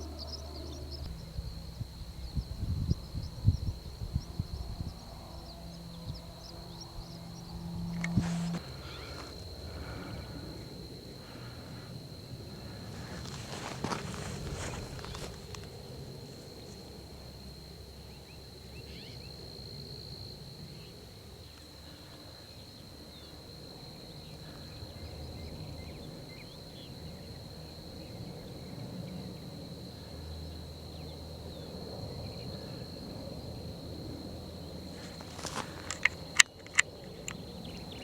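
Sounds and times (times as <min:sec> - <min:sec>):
low outdoor rumble: 0:00.0 - 0:18.2
insects droning: 0:00.0 - 0:38.0.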